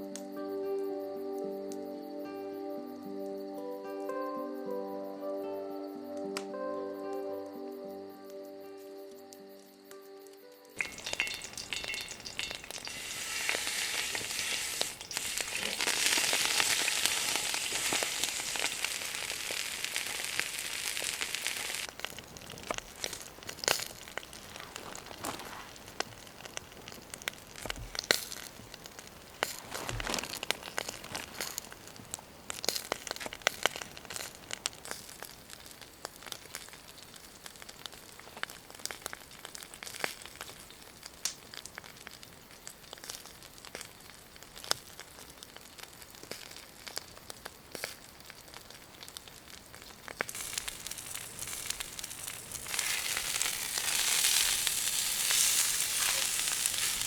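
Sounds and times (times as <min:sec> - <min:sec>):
campfire crackling: 0:10.8 - 0:57.0
food sizzling in a pan: 0:10.8 - 0:57.0
rustling from handling: 0:24.4 - 0:26.0, 0:29.4 - 0:31.6.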